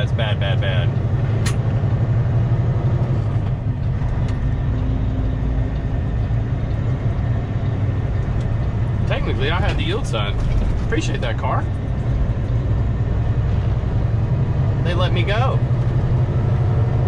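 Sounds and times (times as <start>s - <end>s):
truck engine and road noise: 0.0s - 17.0s
sharp click: 1.4s - 1.6s.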